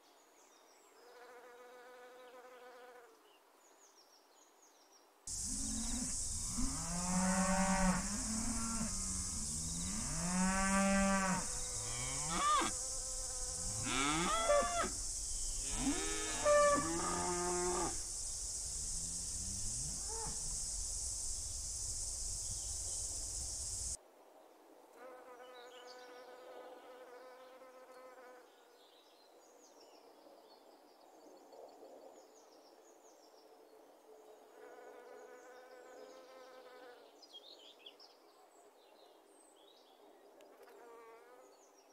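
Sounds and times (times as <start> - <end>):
insect buzzing: 5.3 - 24.0
insects hissing: 5.3 - 24.0
cattle mooing: 13.7 - 15.0.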